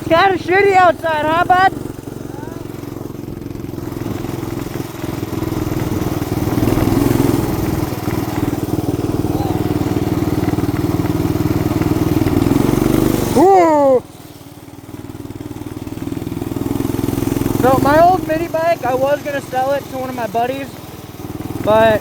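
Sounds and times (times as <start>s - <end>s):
small engine revving: 0.0s - 22.0s.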